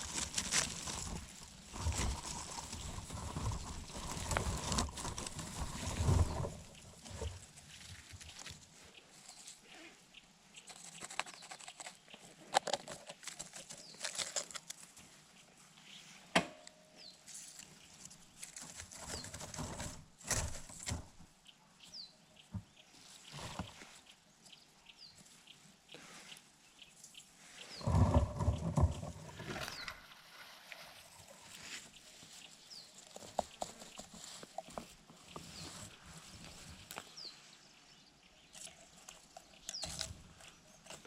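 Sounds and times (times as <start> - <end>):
rustling and small knocks: 0.0 - 9.7, 10.6 - 15.5, 16.3 - 21.4, 22.4 - 24.6, 27.0 - 37.4
small bird chirping: 5.6 - 12.5, 21.2 - 28.1, 31.5 - 41.0.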